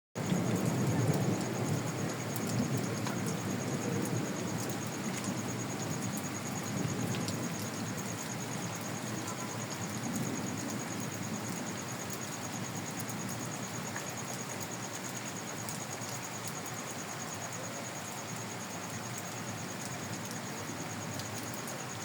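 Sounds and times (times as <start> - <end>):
stormy night hiss: 0.2 - 22.0.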